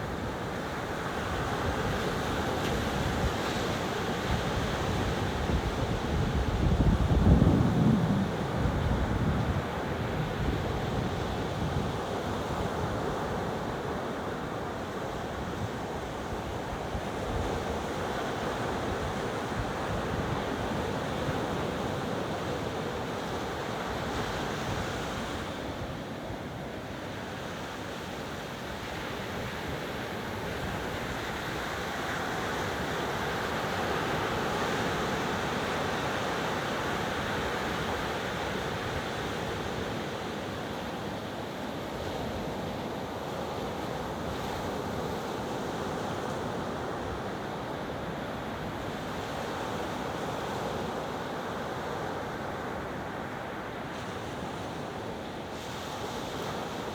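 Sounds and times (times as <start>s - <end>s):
ocean waves washing onto beach: 0.0s - 56.9s
wind noise on microphone: 1.7s - 13.0s.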